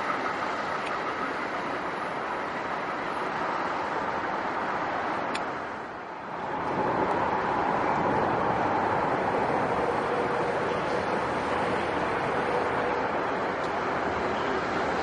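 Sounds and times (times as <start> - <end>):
train running past: 0.0 - 15.0.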